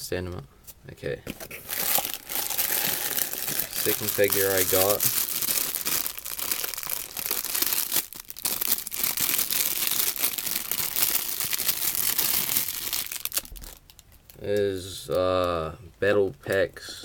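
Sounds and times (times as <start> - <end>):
packaging crinkling and rustling: 1.3 - 14.5.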